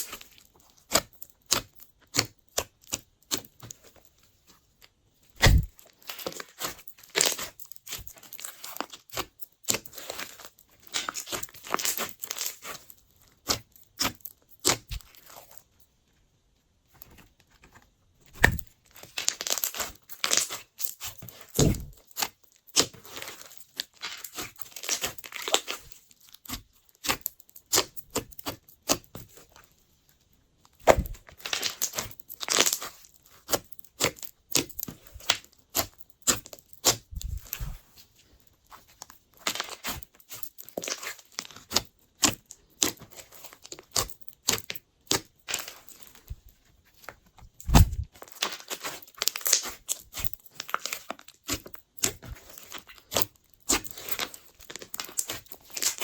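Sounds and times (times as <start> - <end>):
slime squishing crackles and pops: 5.4 - 5.7, 47.6 - 50.4.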